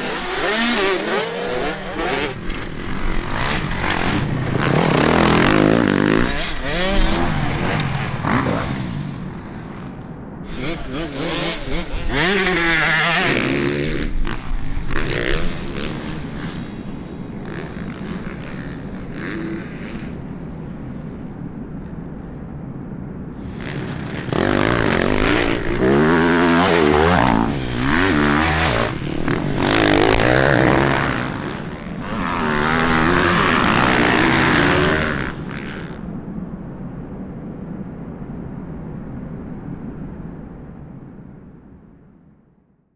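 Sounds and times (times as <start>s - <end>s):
motocross bike engines revving: 0.0s - 21.1s, 23.4s - 36.2s.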